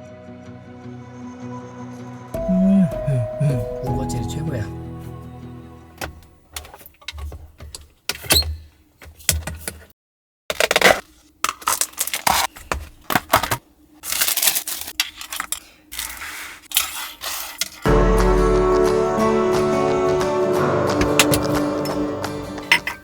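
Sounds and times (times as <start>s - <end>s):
food containers clicking and clinking: 6.0s - 9.9s, 10.5s - 17.8s
packaging rustling: 10.5s - 17.8s.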